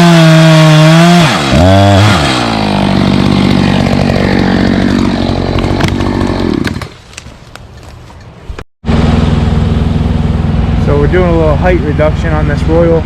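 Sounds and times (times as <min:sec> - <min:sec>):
chainsaw running: 0:00.0 - 0:07.0
wood cracking and snapping: 0:03.0 - 0:08.0
steady engine note: 0:08.9 - 0:13.0.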